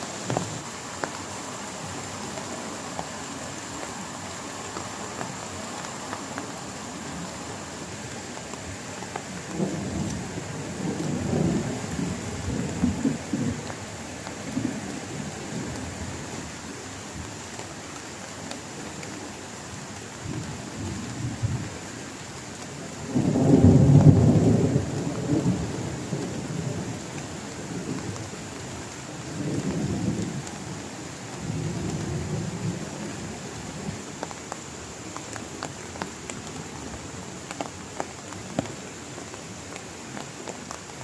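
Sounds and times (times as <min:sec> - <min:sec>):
heavy rain: 0:00.0 - 0:41.0
thunder rumbling: 0:09.4 - 0:13.8, 0:23.1 - 0:27.1.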